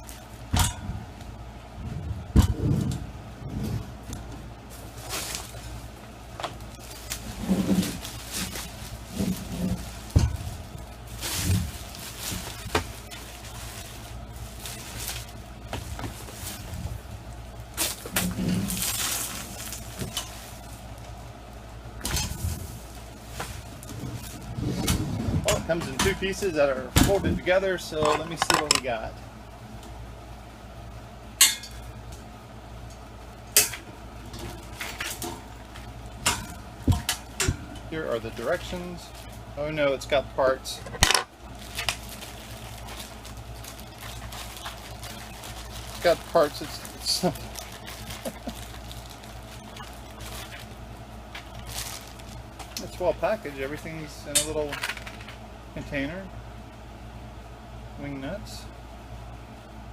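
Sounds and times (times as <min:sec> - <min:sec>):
short low hums: 0:00.0 - 0:26.0.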